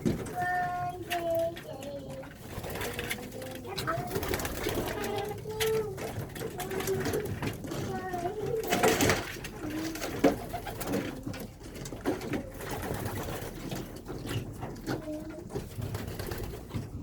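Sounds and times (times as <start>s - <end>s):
small clicks and knocks: 0.0s - 4.1s, 4.8s - 12.7s
pigeons cooing: 2.4s - 17.0s.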